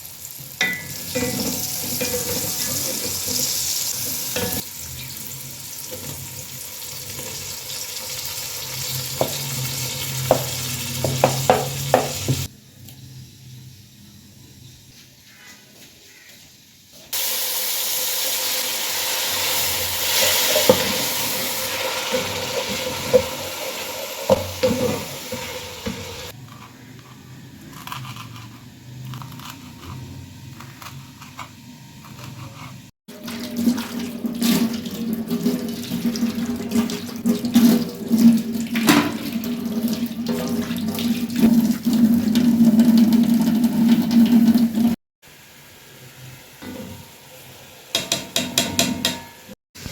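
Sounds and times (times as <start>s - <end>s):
tap water running into sink: 8.9s - 12.5s, 33.1s - 45.0s.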